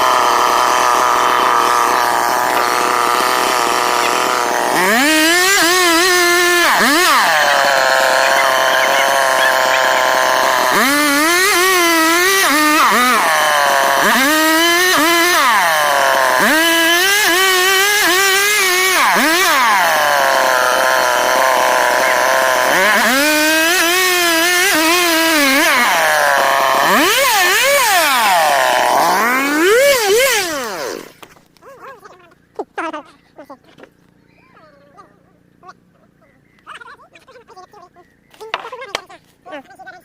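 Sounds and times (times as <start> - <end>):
chainsaw cutting wood: 0.0 - 31.6
chainsaw idling: 0.0 - 31.6.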